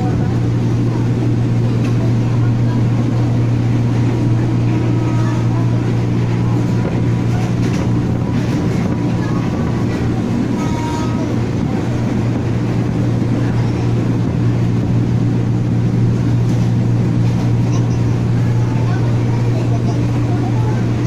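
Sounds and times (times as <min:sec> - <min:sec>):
train running hum and rumble: 0:00.0 - 0:21.0.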